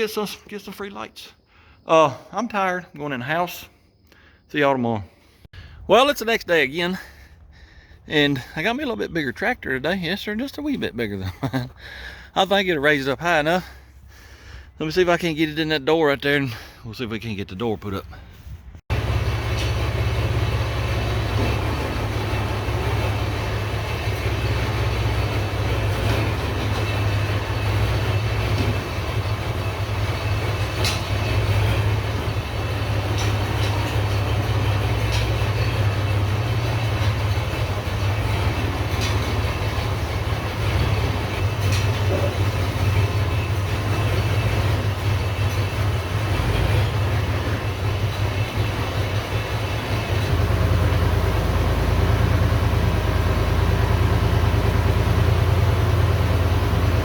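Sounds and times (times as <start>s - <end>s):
tractor engine rumbling: 0.0s - 57.0s
light clanks: 23.9s - 48.7s.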